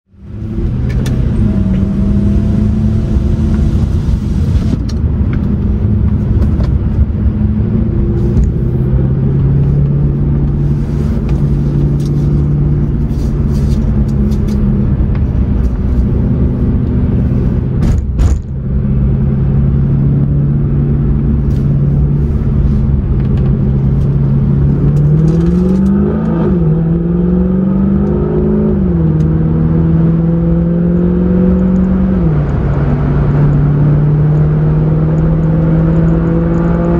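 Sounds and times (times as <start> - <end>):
car engine cruising: 0.1 - 36.9
road and wind noise: 0.1 - 36.9
engine revving and upshifting: 0.3 - 4.7, 23.4 - 36.9.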